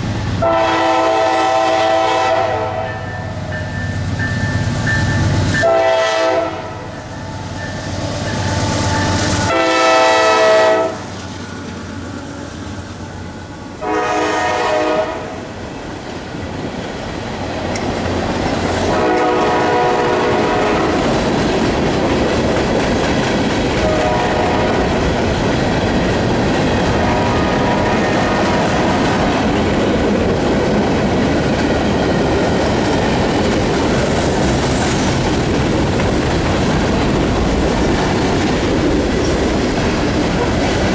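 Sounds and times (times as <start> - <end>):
locomotive horn blasts: 0.4 - 3.4, 4.6 - 7.1, 8.1 - 11.1, 13.8 - 15.5, 18.9 - 21.0, 23.8 - 24.9
wheels clacking on rail joints: 16.0 - 40.9.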